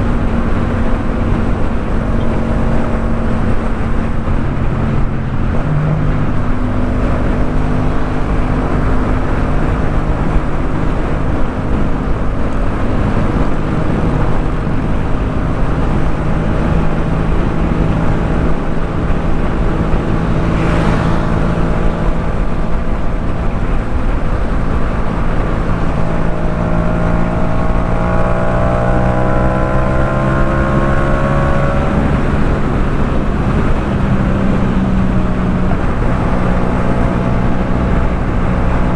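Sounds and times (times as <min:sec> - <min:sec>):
motorcycle engine cruising: 0:00.0 - 0:38.9
wind noise: 0:00.0 - 0:38.9
brief rushing sound: 0:19.9 - 0:23.4.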